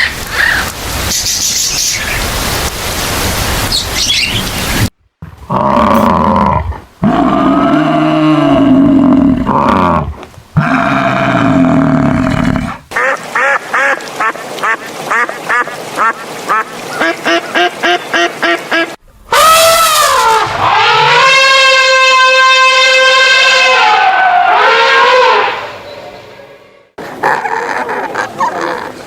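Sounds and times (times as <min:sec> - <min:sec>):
ducks quacking: 0:12.9 - 0:19.0.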